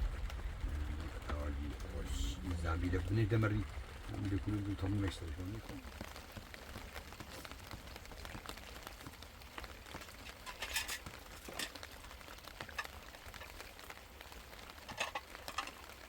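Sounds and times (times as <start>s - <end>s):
rain pattering: 0.0s - 16.0s
rustles or clatters: 4.2s - 16.0s
small ticks: 5.0s - 16.0s.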